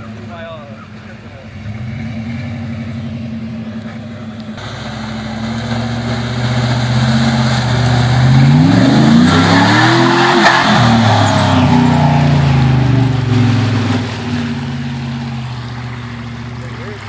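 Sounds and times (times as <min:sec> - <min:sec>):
truck engine under load: 0:00.0 - 0:17.0
water splashing: 0:04.2 - 0:17.0.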